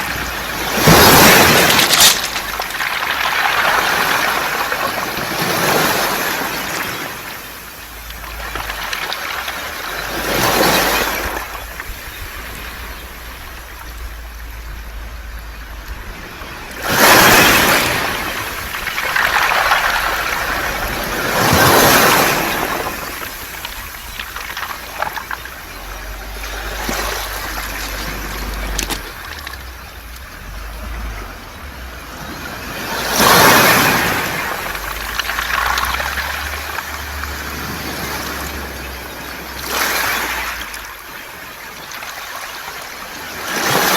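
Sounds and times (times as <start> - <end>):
waves washing onto beach: 0.0 - 43.9
pebbles rattling: 0.1 - 6.1, 7.6 - 12.1, 17.0 - 30.2, 33.2 - 37.5.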